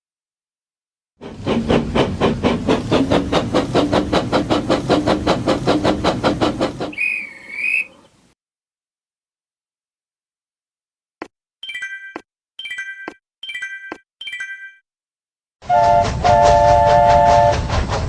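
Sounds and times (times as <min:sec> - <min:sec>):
toy steam train chuffing: 0:01.2 - 0:08.2, 0:15.6 - 0:18.0
toy train whistle: 0:06.9 - 0:08.0, 0:15.6 - 0:17.7.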